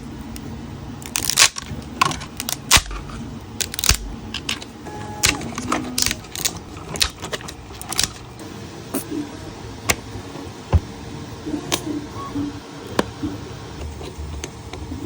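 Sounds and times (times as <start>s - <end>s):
plastic clicks and snaps: 0.3s - 8.2s
short whirring notes: 2.8s - 6.2s.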